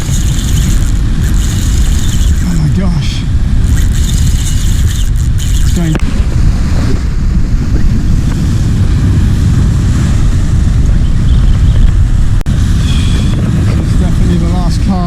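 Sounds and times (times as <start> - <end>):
wind buffeting microphone: 0.0 - 15.0
surf washing over rocks: 5.1 - 10.9.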